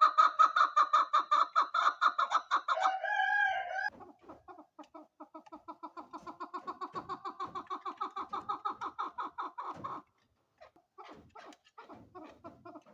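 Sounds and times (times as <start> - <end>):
partridge clucking call: 3.9 - 12.9.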